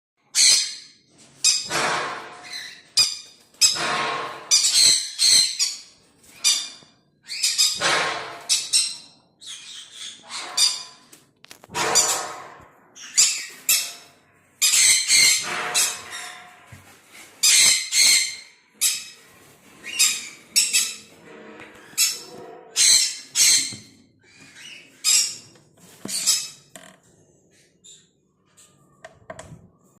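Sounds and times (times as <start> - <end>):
parrots screeching: 0.3 - 11.1, 11.7 - 16.6, 17.4 - 21.2, 21.8 - 25.5.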